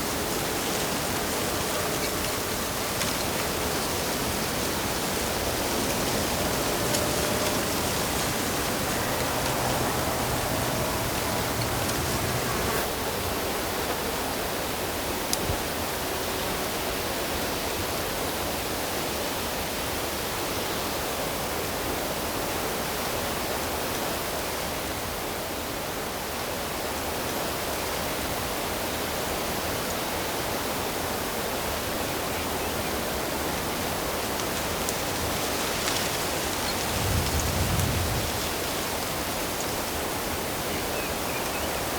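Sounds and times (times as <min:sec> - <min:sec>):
running water rushing: 0:00.0 - 0:12.9.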